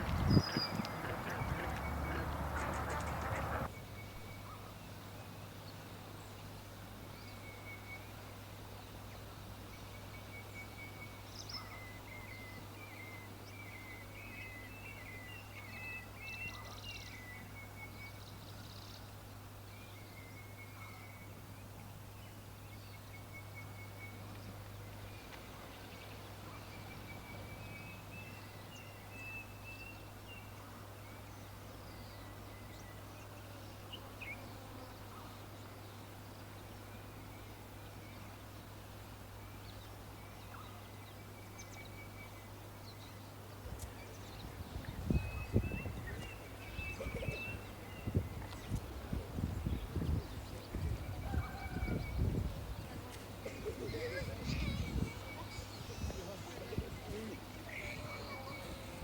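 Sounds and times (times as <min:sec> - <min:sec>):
birds chirping and trilling: 0:00.0 - 0:03.7, 0:39.6 - 0:48.8, 0:49.6 - 0:59.0
duck quacking: 0:00.6 - 0:03.7.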